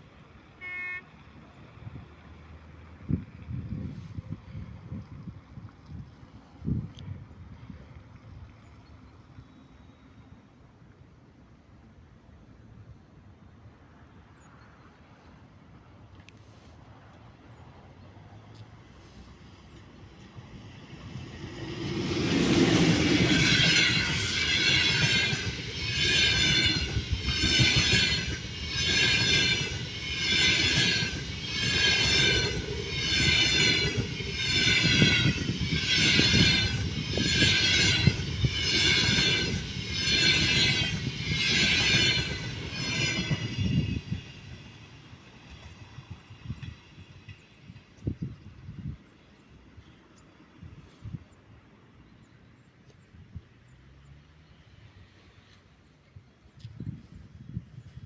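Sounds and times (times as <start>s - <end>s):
passenger train passing: 13.5s - 50.6s
high ringing wheel noise: 21.2s - 44.9s.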